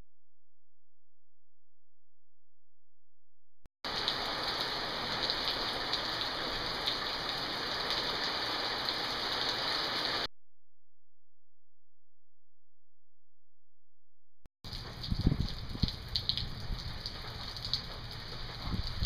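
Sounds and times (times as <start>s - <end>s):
heavy rain pouring: 3.9s - 10.3s, 14.7s - 19.0s.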